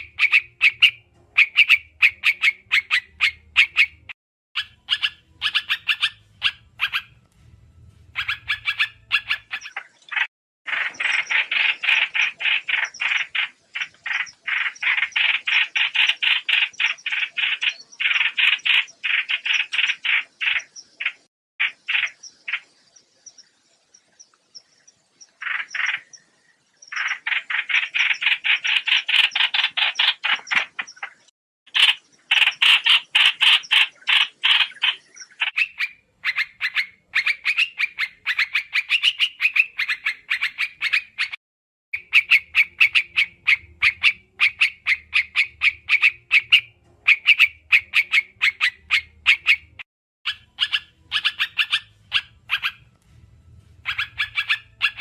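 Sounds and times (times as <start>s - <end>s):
bird chattering calls: 0.0s - 7.2s, 8.1s - 22.8s, 25.2s - 26.3s, 26.9s - 41.4s, 42.0s - 52.9s, 53.8s - 55.0s
faint low hum: 51.0s - 55.0s.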